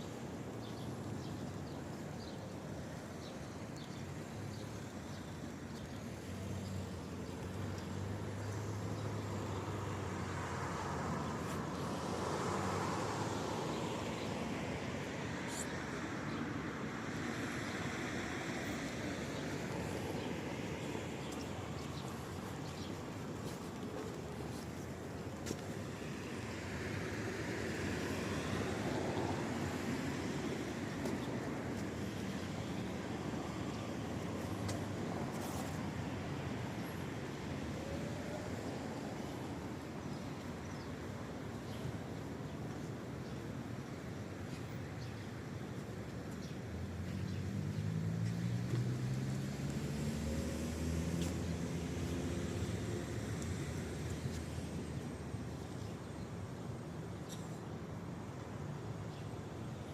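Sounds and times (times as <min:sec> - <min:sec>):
road noise: 0:00.0 - 0:59.9
vehicle passing on wet road: 0:25.8 - 0:31.1, 0:47.2 - 0:54.7.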